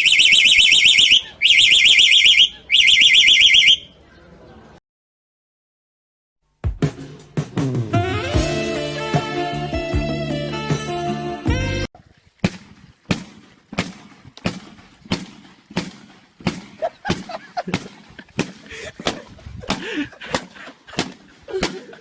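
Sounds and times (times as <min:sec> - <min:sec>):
background music: 0:06.6 - 0:11.9.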